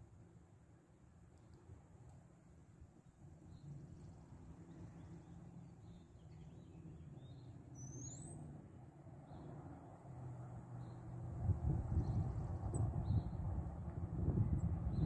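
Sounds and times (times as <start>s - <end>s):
bird chirps: 5.0s - 8.5s
low outdoor rumble: 8.3s - 15.0s.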